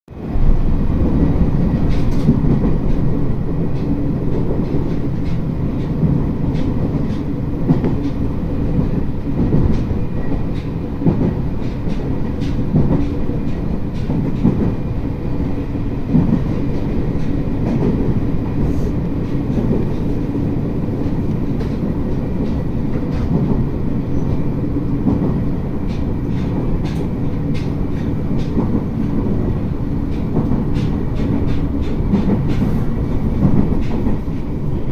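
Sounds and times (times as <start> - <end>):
wheels clicking over rail joints: 21.1 - 34.5.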